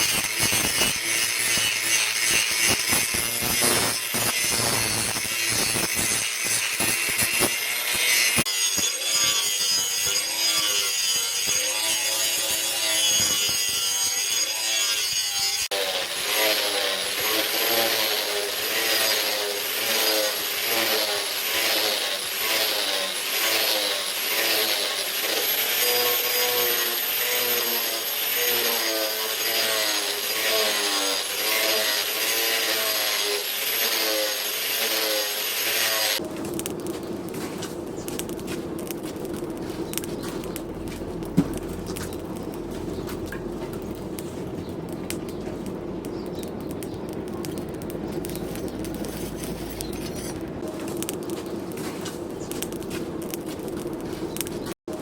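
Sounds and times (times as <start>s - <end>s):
hand tool scraping strokes: 0.0s - 36.2s, 48.2s - 54.8s.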